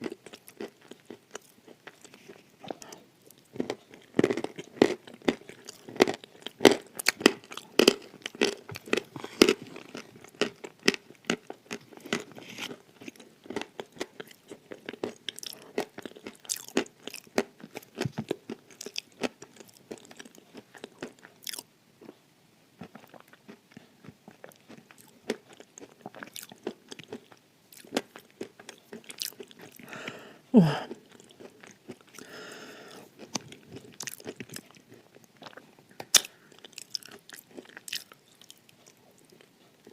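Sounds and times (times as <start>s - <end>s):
crunching and chewing: 0.0s - 22.2s, 22.8s - 30.2s, 30.9s - 39.9s.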